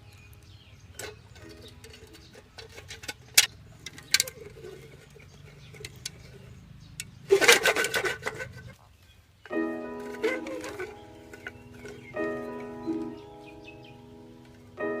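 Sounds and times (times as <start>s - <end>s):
rubbing and scraping by hand: 0.8s - 6.6s, 7.2s - 8.9s, 9.8s - 14.8s
sharp clicks: 5.1s - 8.4s.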